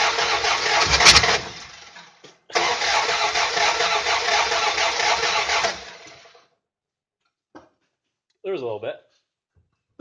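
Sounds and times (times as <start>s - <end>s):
engine starter cranking: 0.0s - 2.0s, 2.6s - 6.4s.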